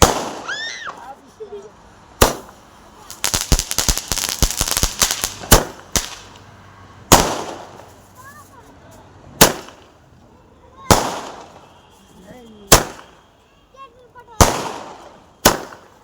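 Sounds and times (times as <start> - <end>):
firecracker bangs: 0.0 - 1.1, 2.2 - 6.4, 7.1 - 7.9, 9.4 - 10.0, 10.8 - 11.9, 12.6 - 13.3, 14.3 - 16.0
firecrackers crackling: 0.0 - 16.0.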